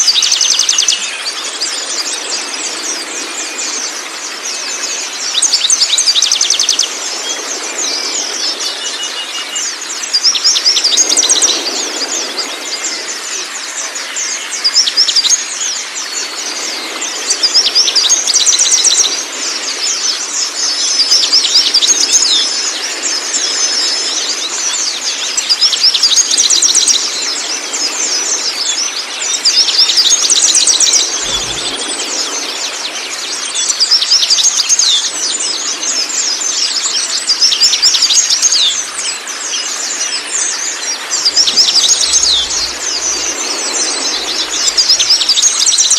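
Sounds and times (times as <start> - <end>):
flowing water rushing: 0.0 - 45.9
low thump: 31.2 - 32.1
songbird chirps and trills: 36.6 - 45.9.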